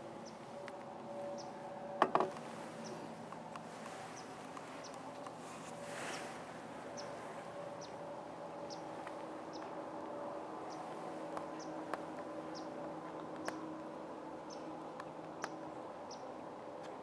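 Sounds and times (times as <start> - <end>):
faint steady hum: 0.0 - 17.0
brushing handling noise: 2.0 - 7.7.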